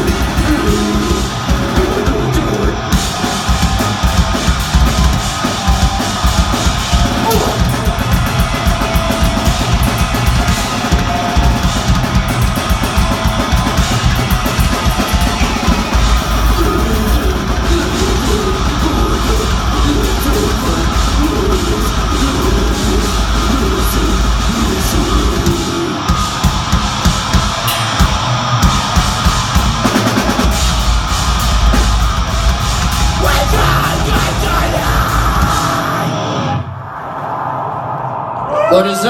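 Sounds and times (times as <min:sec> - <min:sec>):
fast drumming: 0:00.0 - 0:36.2
hard-hit drum accents: 0:00.0 - 0:36.4
distorted guitars and bass: 0:00.0 - 0:36.7.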